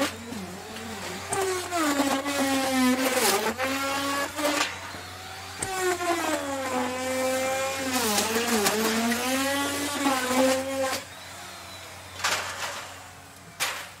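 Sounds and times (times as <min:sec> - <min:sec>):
router bit cutting wood: 0:00.0 - 0:14.0
wood router motor whine: 0:00.0 - 0:14.0.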